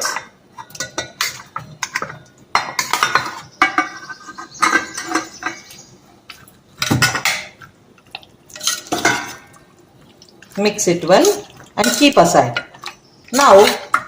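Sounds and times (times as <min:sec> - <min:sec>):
spoon scraping a bowl: 0:02.8 - 0:05.8.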